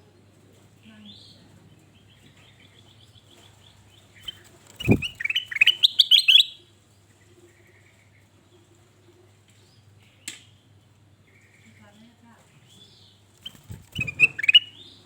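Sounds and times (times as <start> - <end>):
short low thump: 4.8 - 5.2
bulbul chirping: 4.8 - 6.5, 13.4 - 14.8.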